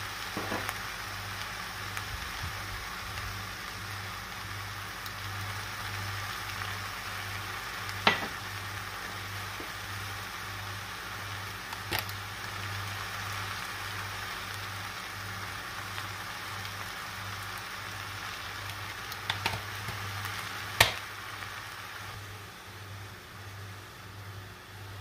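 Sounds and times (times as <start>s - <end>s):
vegetables sizzling in oil: 0.0s - 25.0s
sharp knocks on pot: 8.0s - 8.3s, 20.8s - 21.0s.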